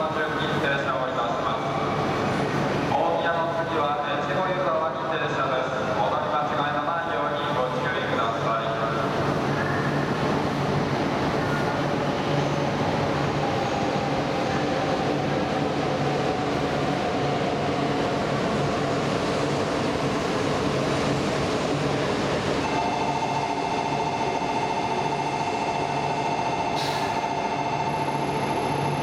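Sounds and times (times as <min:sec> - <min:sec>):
platform departure bell ringing: 0:22.6 - 0:29.0.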